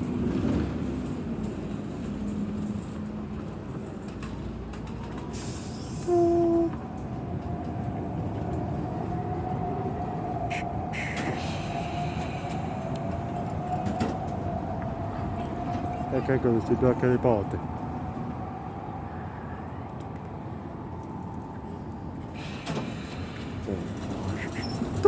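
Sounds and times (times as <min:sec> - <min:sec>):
tram rumbling on rails: 0:00.0 - 0:25.0
tram horn: 0:06.0 - 0:06.8.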